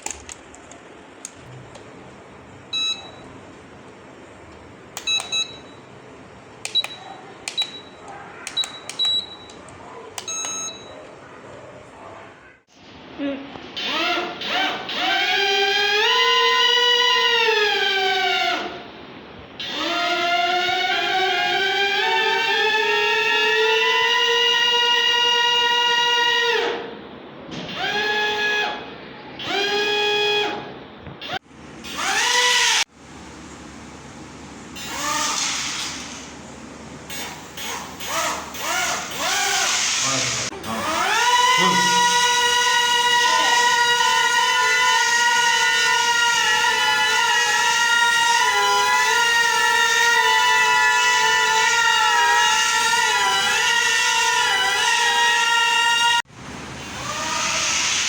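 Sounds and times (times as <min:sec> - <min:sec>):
small electric motor whining: 0:37.1 - 0:56.2, 0:56.8 - 0:58.0.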